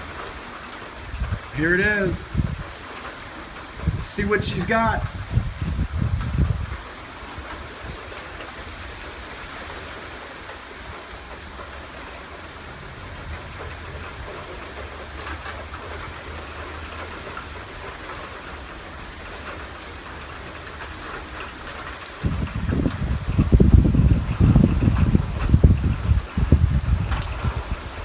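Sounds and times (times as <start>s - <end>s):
torrential rain pouring: 0.0s - 28.0s
wind gust buffeting microphone: 1.0s - 2.8s, 3.6s - 8.1s, 22.2s - 28.0s.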